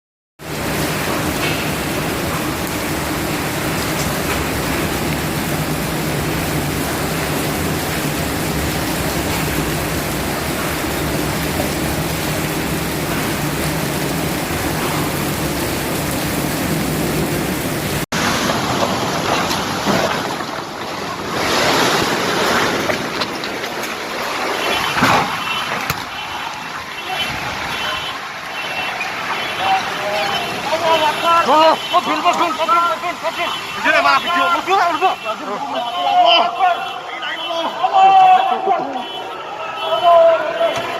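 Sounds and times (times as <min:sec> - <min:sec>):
pouring rain: 0:00.4 - 0:40.9.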